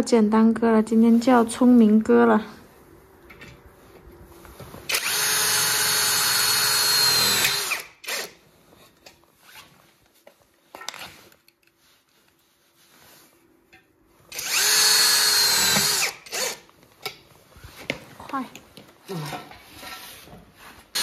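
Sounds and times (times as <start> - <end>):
power drill driving a screw: 4.9 - 8.4, 14.3 - 16.7
handling of parts: 8.7 - 12.4.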